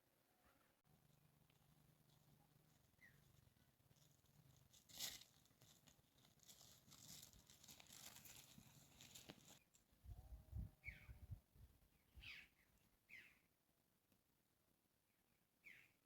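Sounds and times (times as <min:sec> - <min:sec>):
faint rustling and crackling: 0:00.9 - 0:09.9.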